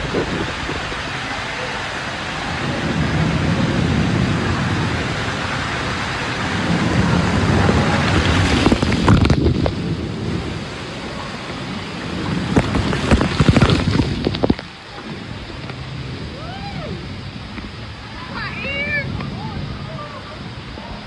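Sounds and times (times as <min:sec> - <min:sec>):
water rushing and splashing: 0:00.0 - 0:21.0
sharp splashes and knocks: 0:07.2 - 0:09.9, 0:12.3 - 0:15.8.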